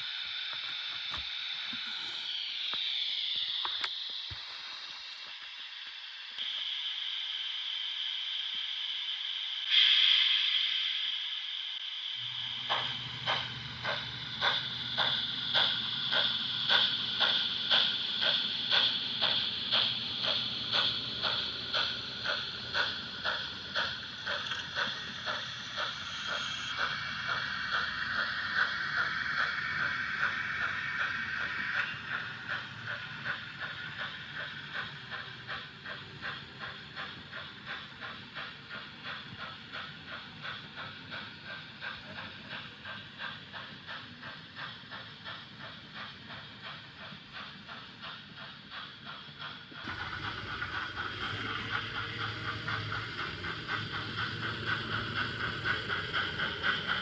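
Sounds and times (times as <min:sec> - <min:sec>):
model steam locomotive chuffs: 0:00.0 - 0:57.0
whirr of model mechanism: 0:12.2 - 0:43.5, 0:49.2 - 0:57.0.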